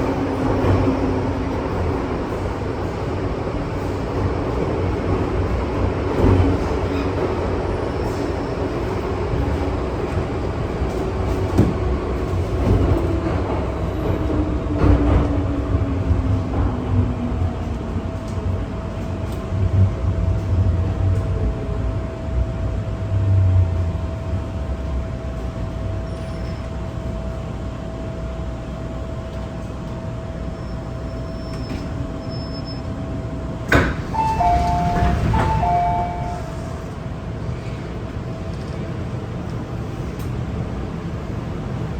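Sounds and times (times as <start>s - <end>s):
train cabin rumble: 0.0s - 26.0s, 33.0s - 41.9s
two-note electronic door chime: 34.1s - 36.7s.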